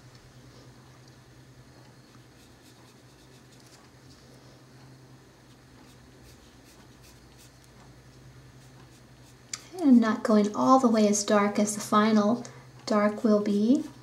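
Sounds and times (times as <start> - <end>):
low electrical hum: 0.0 - 14.0
colored pencil scratching on paper: 2.1 - 3.8, 5.5 - 7.6.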